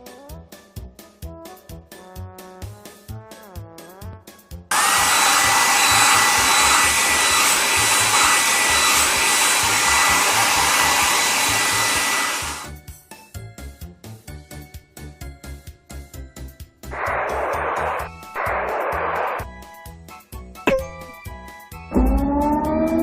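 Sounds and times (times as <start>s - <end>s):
children's music with steady beat: 0.0s - 4.7s, 12.7s - 16.9s, 19.5s - 23.0s
rushing hiss with high whistle: 4.7s - 12.7s.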